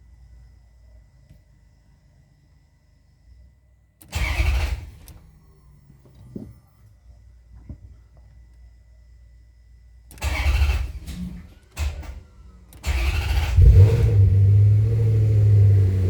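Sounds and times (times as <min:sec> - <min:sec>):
starter motor cranking: 0:10.1 - 0:12.2, 0:12.8 - 0:15.6
car engine revving and idling: 0:12.8 - 0:16.0.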